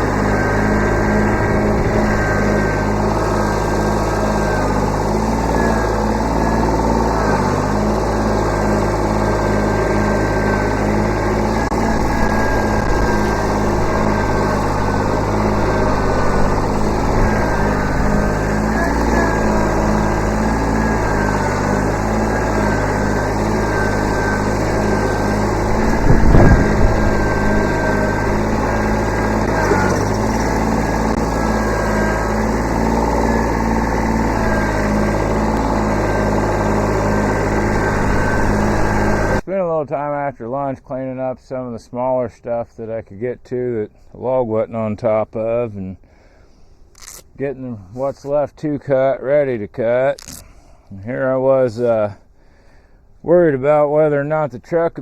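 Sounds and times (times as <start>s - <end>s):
diesel tractor engine running: 0.0s - 39.5s.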